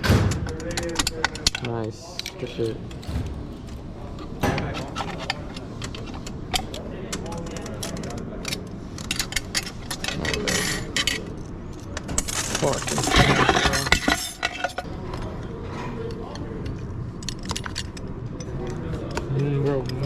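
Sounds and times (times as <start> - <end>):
metal parts clinking: 0.4 - 14.9.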